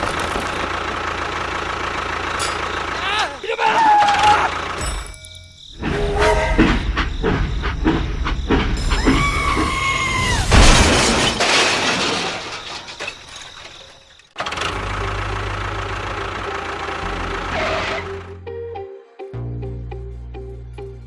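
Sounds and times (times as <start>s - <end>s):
engine starting and running: 0.0s - 3.2s, 5.8s - 11.5s, 12.4s - 18.4s
loud crash: 5.8s - 14.1s.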